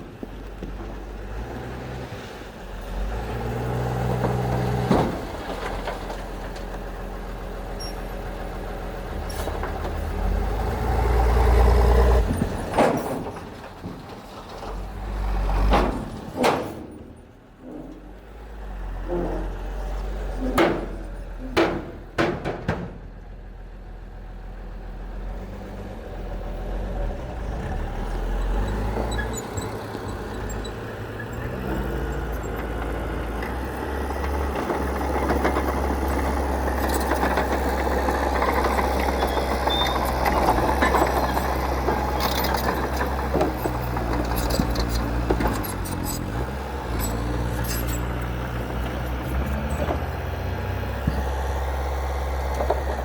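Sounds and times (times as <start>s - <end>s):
heavy diesel engine running: 2.4s - 53.0s.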